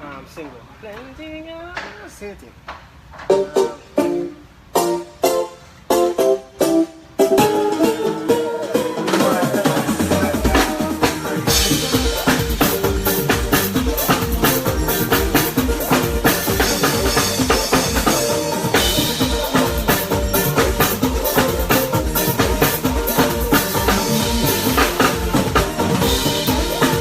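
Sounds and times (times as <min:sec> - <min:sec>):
live band playing: 0:03.2 - 0:27.0
drum kit kick and snare: 0:06.6 - 0:27.0.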